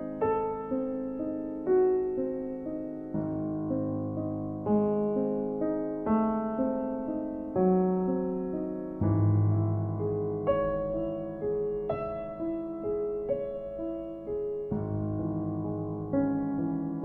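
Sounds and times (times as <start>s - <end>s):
slow soft piano music: 0.0s - 17.0s.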